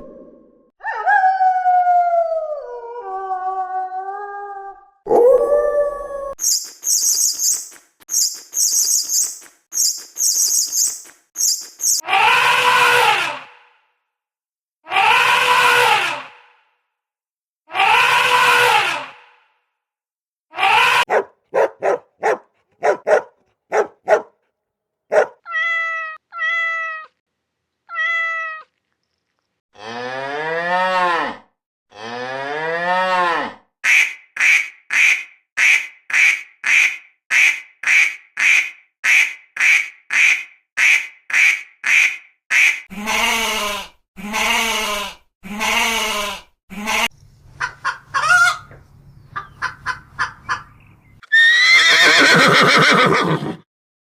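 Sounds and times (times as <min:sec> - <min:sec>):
short clicks and chirps: 0:06.4 - 0:12.0
fast short repeated calls: 0:06.4 - 0:12.4.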